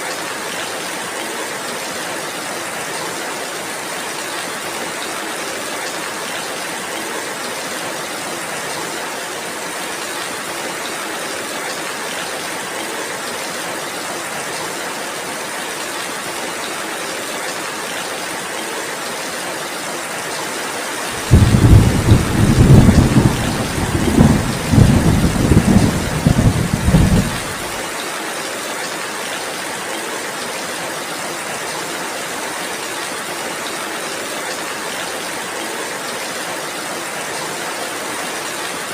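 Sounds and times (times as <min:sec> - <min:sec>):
heavy rain hissing: 0:21.1 - 0:28.0
thunder rumble: 0:21.2 - 0:27.7.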